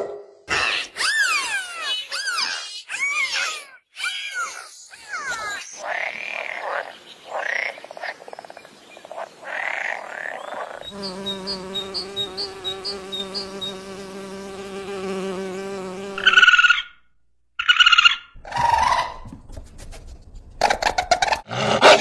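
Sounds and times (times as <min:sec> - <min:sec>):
honeybees buzzing: 0:10.8 - 0:16.8.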